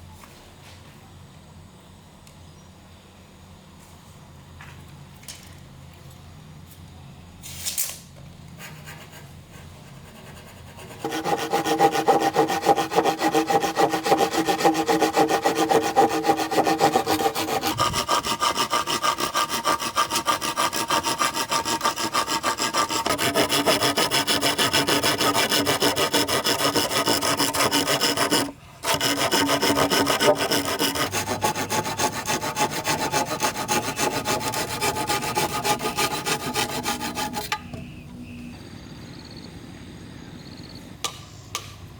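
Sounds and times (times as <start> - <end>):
saw cutting bamboo: 10.2 - 38.0.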